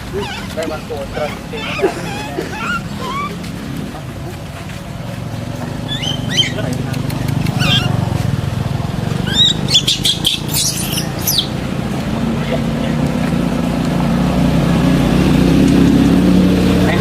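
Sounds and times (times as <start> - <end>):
high-pitched chirping calls: 0.0 - 3.8, 5.7 - 8.2, 9.1 - 11.7
engine humming: 0.0 - 17.0.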